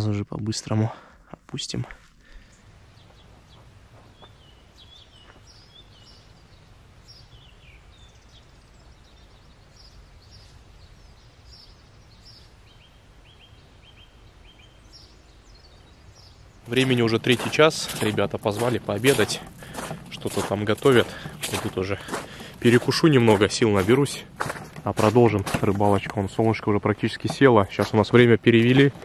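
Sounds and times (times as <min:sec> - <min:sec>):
faint low wind rumble: 0:00.0 - 0:29.0
small birds chirping: 0:00.0 - 0:29.0.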